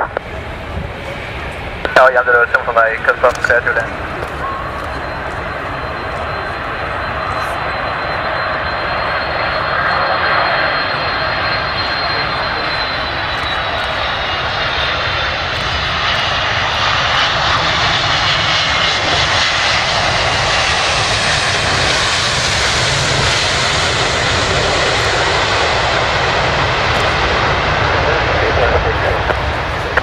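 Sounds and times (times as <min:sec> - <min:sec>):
airliner engines rushing: 0:00.0 - 0:30.0.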